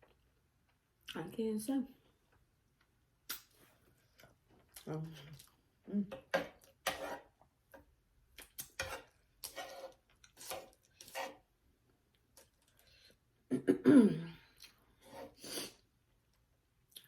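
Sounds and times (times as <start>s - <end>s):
chewing and wet mouth noises: 3.3s - 5.6s.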